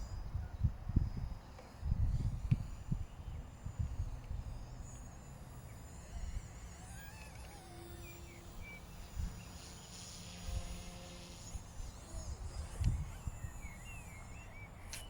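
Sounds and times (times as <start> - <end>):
wind buffeting microphone: 0.0 - 4.6, 10.4 - 14.9
faint high chirps: 3.0 - 15.0.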